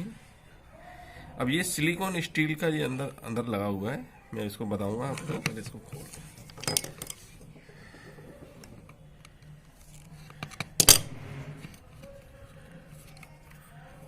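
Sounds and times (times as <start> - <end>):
metallic clicks of parts handled: 5.2 - 7.4, 8.6 - 11.0.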